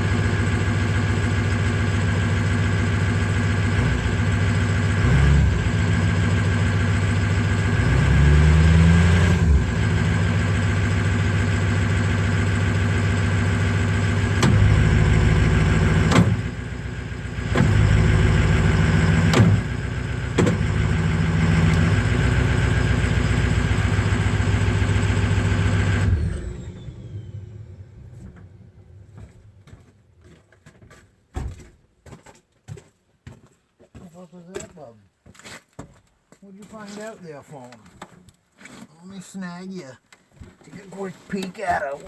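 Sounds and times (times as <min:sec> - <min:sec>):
truck engine running: 0:00.0 - 0:30.4.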